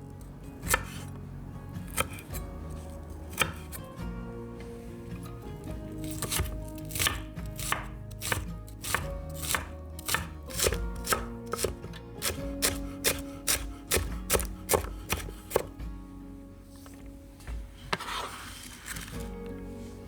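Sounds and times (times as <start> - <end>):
soft background music: 0.0 - 20.0
knife chopping on cutting board: 0.7 - 1.1, 1.9 - 3.8, 6.0 - 15.8.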